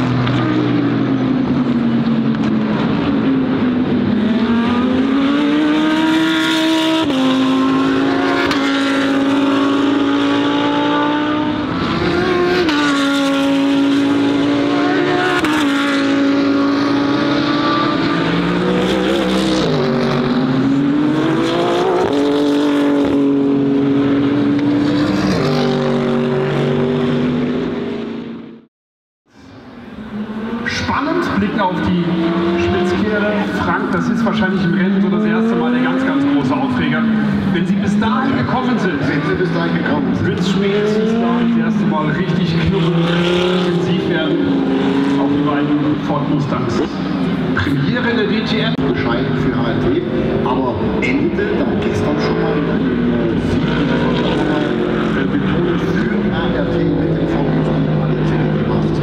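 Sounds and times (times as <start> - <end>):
race car engines revving high: 0.0 - 28.7, 29.4 - 59.0.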